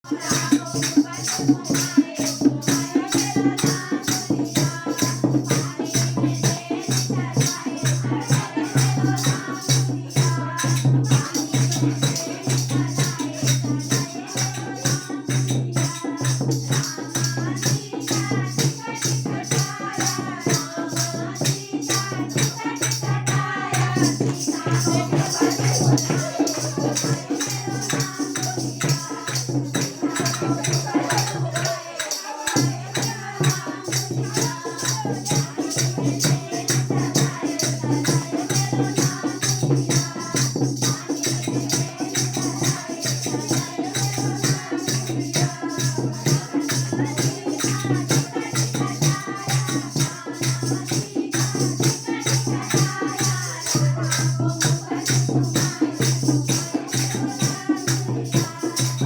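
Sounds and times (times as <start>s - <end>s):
person singing folk song: 0.0s - 59.0s
shaken rattle percussion: 0.0s - 59.0s.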